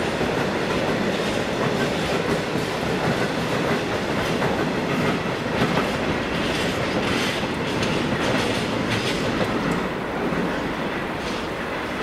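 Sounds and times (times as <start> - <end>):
freight train rolling past: 0.0 - 12.0
wheels clattering over rail joints: 4.3 - 11.6.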